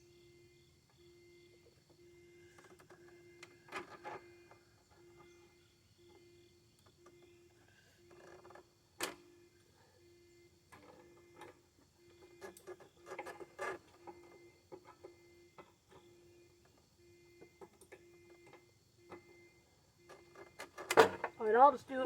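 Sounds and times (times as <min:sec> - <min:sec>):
faint steady hum: 0:00.0 - 0:22.0
clicks and knocks of parts: 0:12.2 - 0:16.8, 0:20.0 - 0:21.4.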